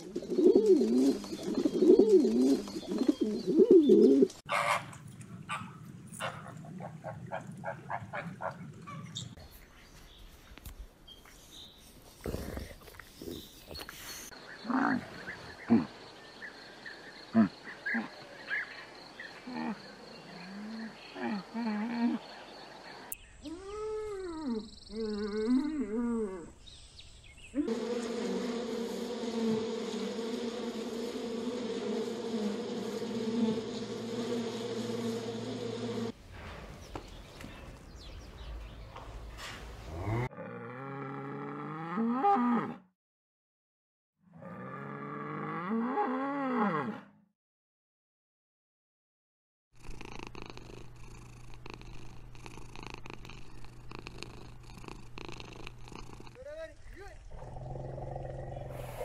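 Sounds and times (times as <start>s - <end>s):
honeybees buzzing: 27.6s - 36.2s
cat purring: 49.8s - 56.4s.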